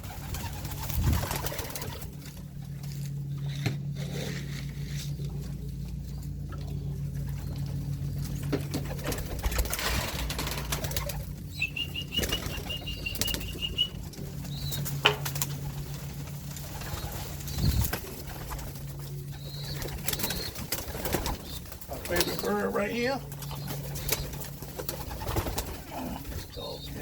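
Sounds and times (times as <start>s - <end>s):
pigeons flapping wings: 0.0s - 3.9s, 5.2s - 27.0s
steady low hum: 0.0s - 27.0s
rapid high chirps: 11.0s - 14.7s.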